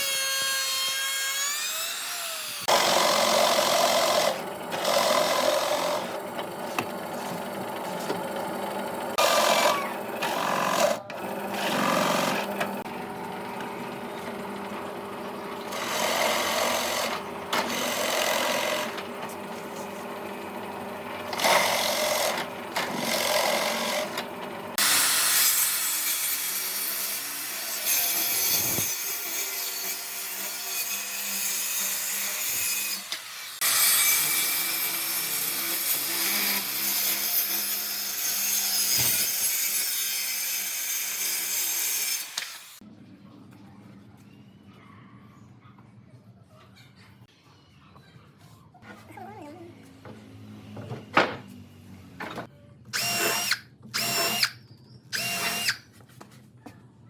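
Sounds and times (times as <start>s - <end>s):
power tools working wood: 0.0s - 42.8s, 52.2s - 54.6s, 55.2s - 55.8s
steady motor hum: 2.7s - 24.8s.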